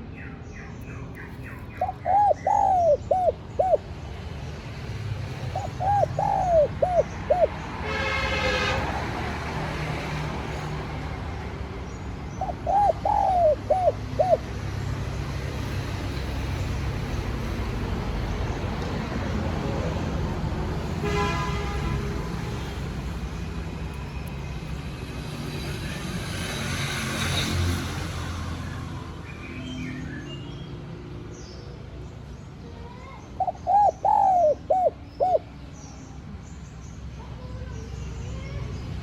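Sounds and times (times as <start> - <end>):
low traffic rumble: 0.0 - 39.0
dove cooing: 1.6 - 3.9, 5.4 - 7.6, 12.3 - 14.6, 33.4 - 35.6.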